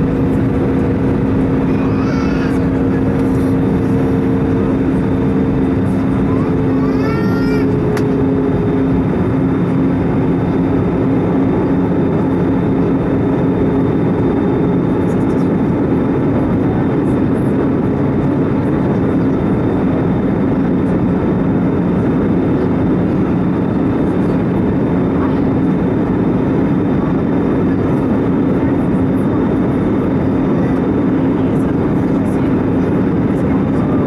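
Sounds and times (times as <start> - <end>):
aircraft cabin engine drone: 0.0 - 34.0.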